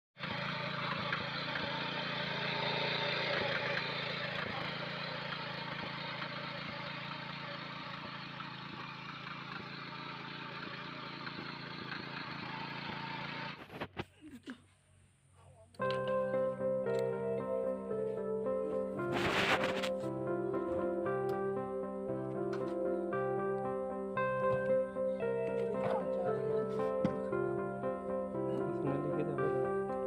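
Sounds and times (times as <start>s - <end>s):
small engine running: 0.2s - 13.8s.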